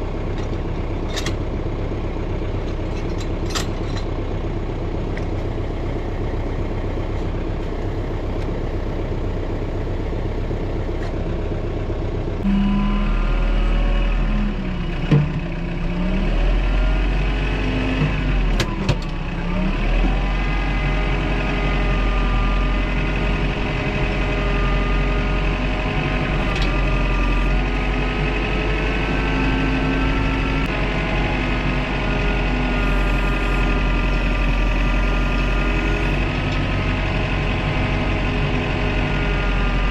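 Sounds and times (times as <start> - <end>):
engine revving: 12.4 - 39.9.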